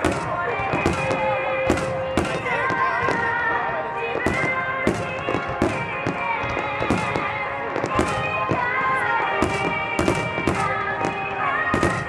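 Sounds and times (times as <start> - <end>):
music with long held notes: 0.0 - 12.0
firework shells bursting: 4.2 - 12.0.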